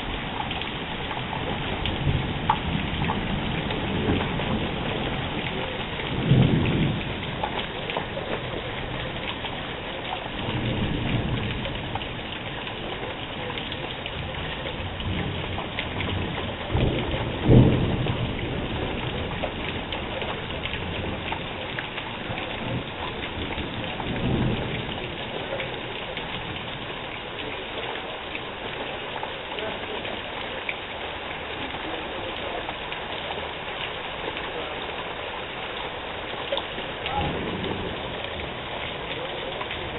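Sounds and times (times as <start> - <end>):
thunder rumbling: 0.0 - 27.2, 34.6 - 39.9
heavy rain falling: 0.0 - 39.9.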